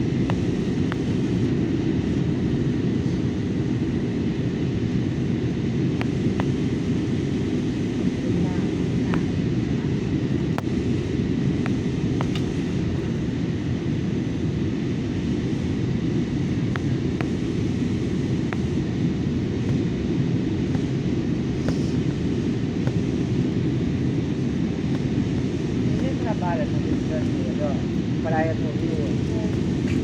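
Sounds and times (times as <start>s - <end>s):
airliner cabin rumble: 0.0s - 30.0s.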